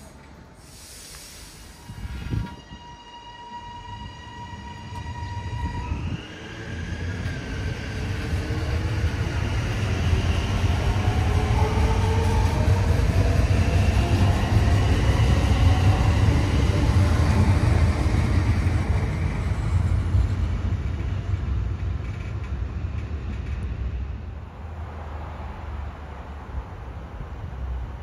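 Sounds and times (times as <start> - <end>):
train rumbling past: 0.0 - 28.0.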